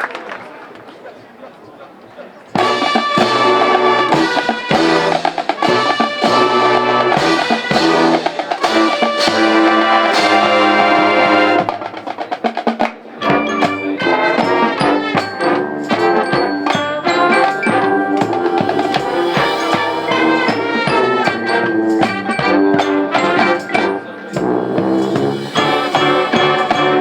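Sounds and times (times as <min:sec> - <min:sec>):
marching band brass chords: 0:02.5 - 0:27.0
drums: 0:02.6 - 0:27.0.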